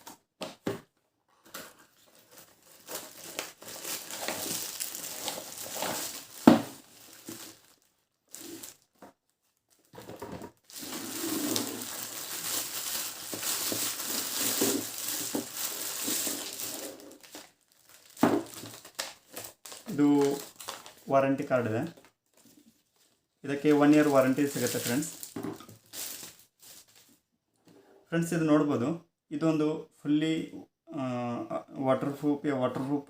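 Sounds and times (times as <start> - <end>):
packaging rustling and crinkling: 1.4 - 27.2.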